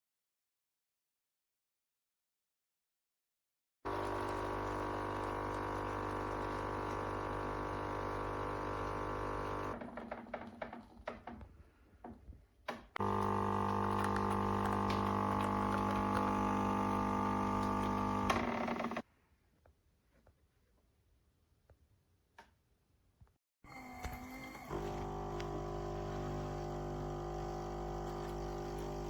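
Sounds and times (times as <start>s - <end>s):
coffee machine pump humming: 3.9s - 9.8s, 13.0s - 19.0s, 23.8s - 29.0s
running liquid: 3.9s - 9.8s, 13.0s - 19.0s, 24.7s - 29.0s.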